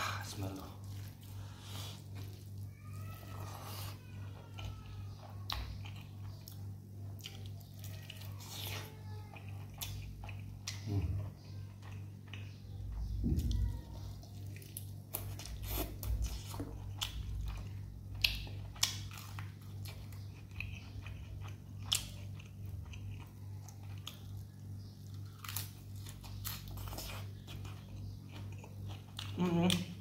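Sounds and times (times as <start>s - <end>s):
crunchy chewing: 0.2s - 30.0s.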